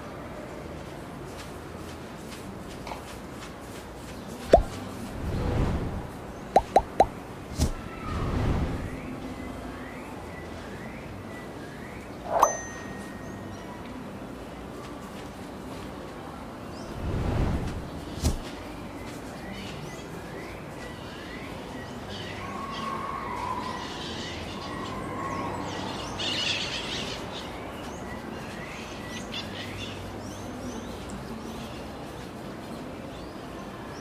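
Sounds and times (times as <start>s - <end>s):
birds chirping: 6.1s - 8.0s.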